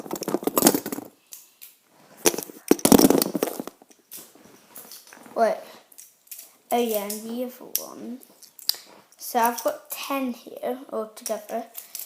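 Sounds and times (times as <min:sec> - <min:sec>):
fidget spinners clicking and clattering: 0:11.2 - 0:12.0.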